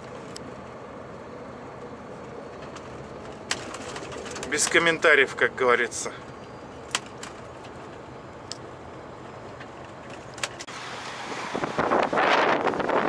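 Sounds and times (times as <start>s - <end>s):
steady low background noise: 0.0s - 10.9s
rush of blizzard wind: 6.2s - 13.0s.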